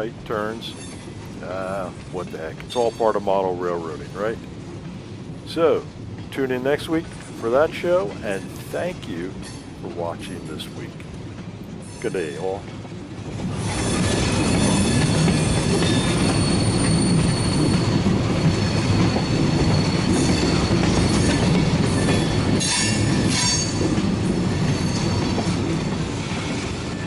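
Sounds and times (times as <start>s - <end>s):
clickety-clack of rail joints: 0.0s - 27.0s
train rolling on rails: 0.0s - 27.0s
wheels squealing: 13.6s - 24.0s.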